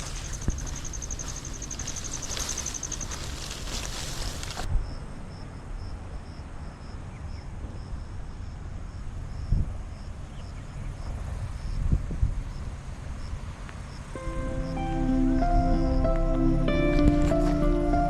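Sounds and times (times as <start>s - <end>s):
insect chirping: 0.0s - 8.6s
wind on microphone: 11.0s - 13.6s.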